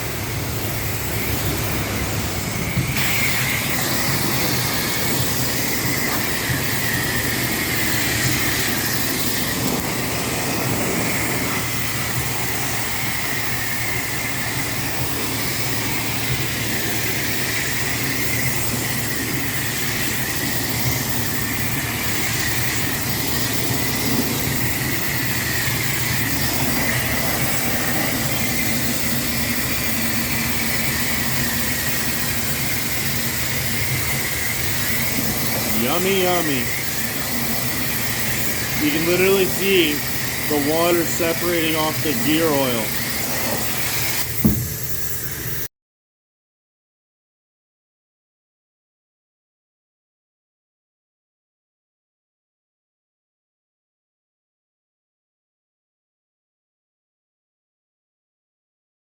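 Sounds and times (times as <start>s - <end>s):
high whine: 0.0s - 45.7s
pressure washer spraying water: 0.0s - 45.7s.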